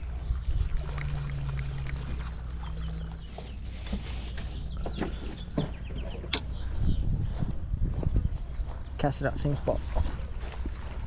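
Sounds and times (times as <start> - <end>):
low drone: 0.0 - 7.2
small birds chirping: 0.0 - 11.0
steady low rumble: 0.0 - 11.0.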